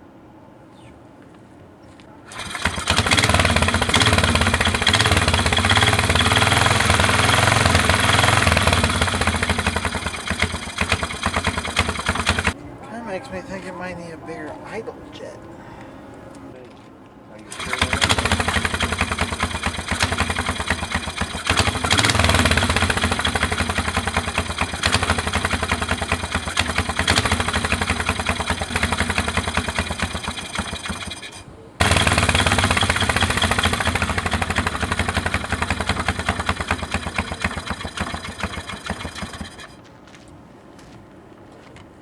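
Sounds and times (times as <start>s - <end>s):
engine running at fast idle: 2.3s - 12.6s, 17.5s - 39.8s.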